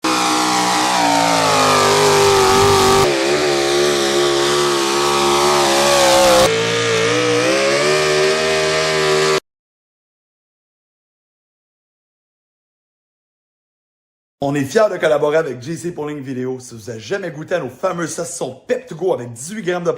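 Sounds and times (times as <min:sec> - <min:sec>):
truck engines revving: 0:00.0 - 0:09.4.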